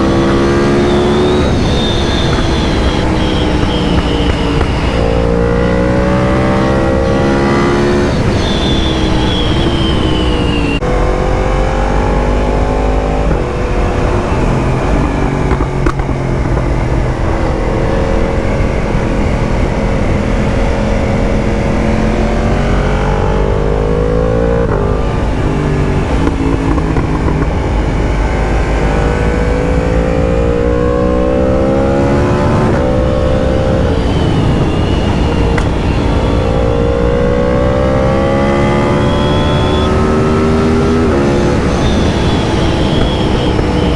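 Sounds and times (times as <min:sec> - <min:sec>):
motorcycle engine accelerating: 0:00.0 - 0:43.9
wind rumble: 0:00.0 - 0:43.9.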